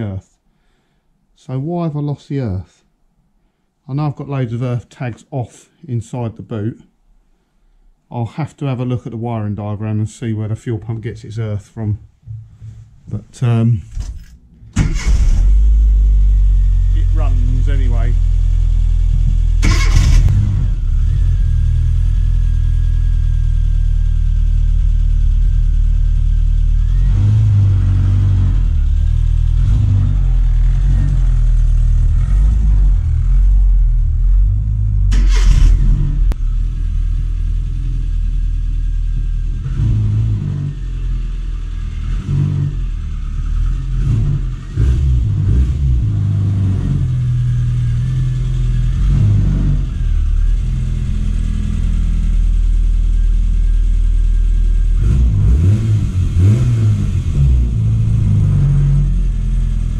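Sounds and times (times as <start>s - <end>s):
car engine revving: 14.6s - 59.9s.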